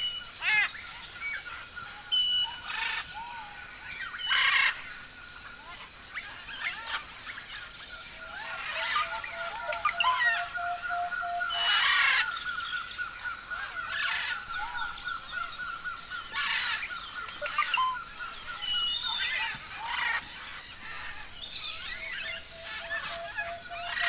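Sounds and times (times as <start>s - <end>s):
parrots squawking: 8.4s - 12.4s, 21.8s - 24.0s.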